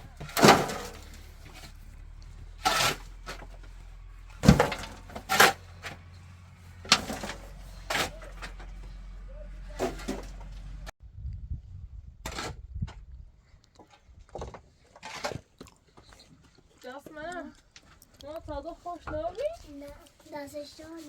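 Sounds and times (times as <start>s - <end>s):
knocks and clattering thumps: 0.0s - 1.8s, 4.4s - 6.2s, 6.8s - 9.0s, 9.7s - 10.7s.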